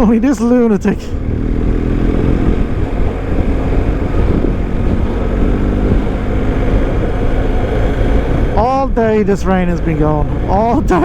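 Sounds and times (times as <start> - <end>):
motorcycle engine running: 0.0 - 11.0
wind noise on microphone: 1.2 - 9.2.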